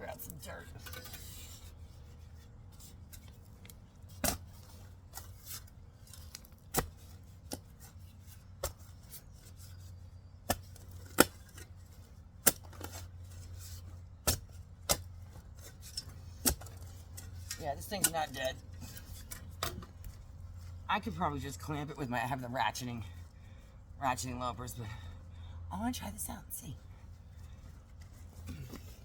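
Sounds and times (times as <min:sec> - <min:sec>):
low steady hum: 0:00.0 - 0:29.0
digging tool knocking soil and roots: 0:02.7 - 0:22.2.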